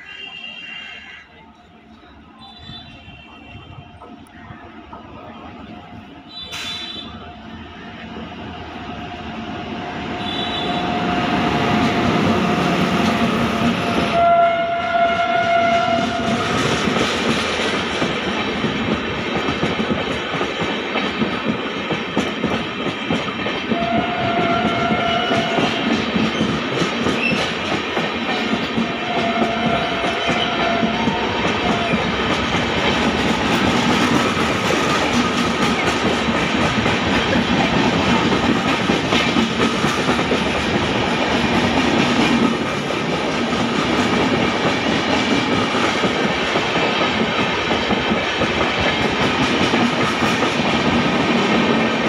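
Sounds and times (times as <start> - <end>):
two-tone train horn: 0.0 - 1.5, 2.4 - 4.2, 6.3 - 7.3, 10.1 - 11.8, 13.9 - 16.8, 23.7 - 26.1, 28.4 - 32.3
train wheels on rails: 0.0 - 52.0.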